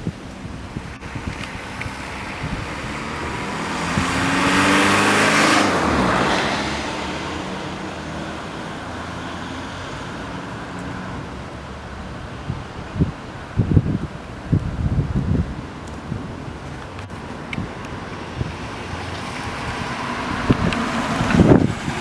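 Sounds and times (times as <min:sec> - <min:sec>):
car driving past: 0:01.0 - 0:11.4, 0:18.0 - 0:22.0.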